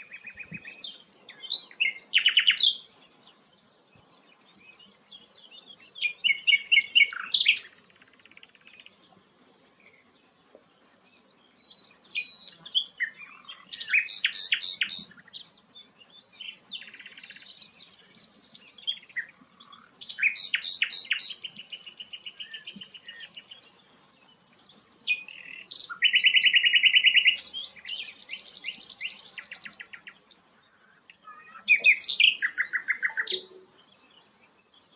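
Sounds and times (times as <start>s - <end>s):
flycatcher singing trills: 10.4s - 30.4s, 31.1s - 34.9s.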